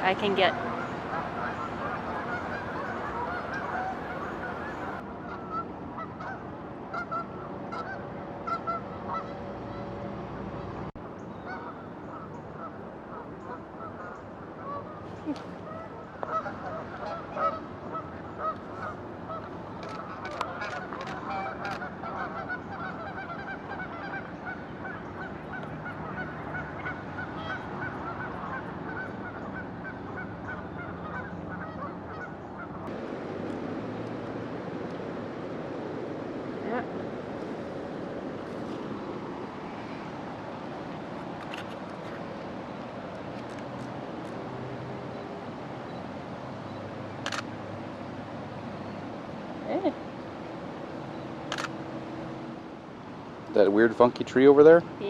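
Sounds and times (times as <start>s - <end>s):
geese honking: 0.0s - 9.9s, 11.4s - 15.0s, 15.6s - 33.0s.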